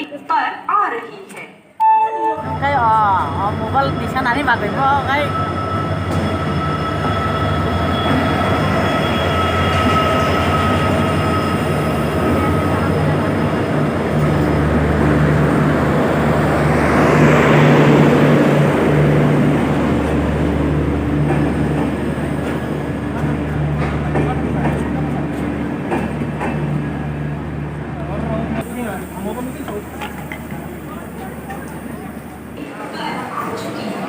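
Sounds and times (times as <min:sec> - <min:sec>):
locomotive engine humming: 0:01.8 - 0:32.6
high squeal: 0:04.5 - 0:12.8.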